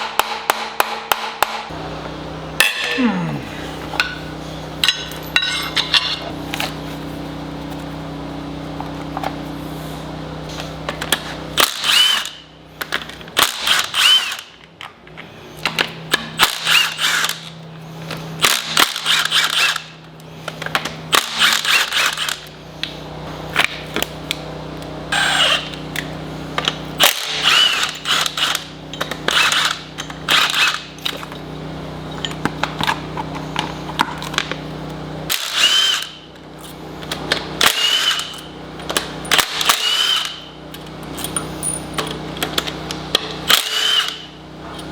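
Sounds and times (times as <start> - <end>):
steady low hum: 1.6 - 44.9
power drill whining in bursts: 11.6 - 12.5, 13.3 - 14.6, 15.5 - 22.6, 25.1 - 31.3, 35.3 - 41.8, 42.4 - 44.9.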